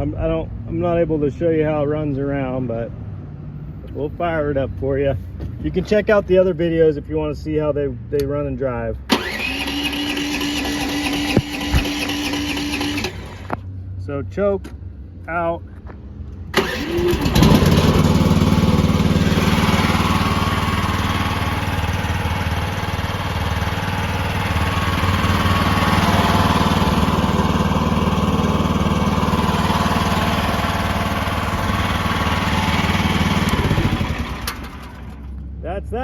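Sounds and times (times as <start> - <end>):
small gasoline engine running: 9.1 - 13.6, 16.6 - 35.4.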